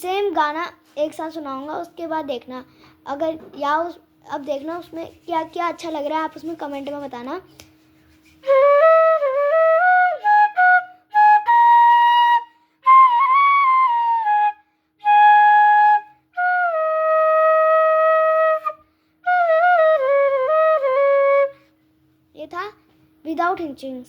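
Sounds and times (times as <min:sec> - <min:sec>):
flute melody: 0:08.2 - 0:21.6.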